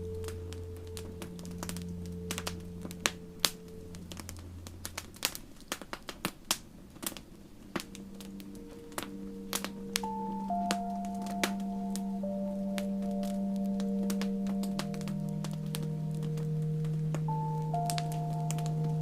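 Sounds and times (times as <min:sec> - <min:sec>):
ambient music with held tones: 0:00.0 - 0:19.0
campfire crackling and popping: 0:00.0 - 0:19.0.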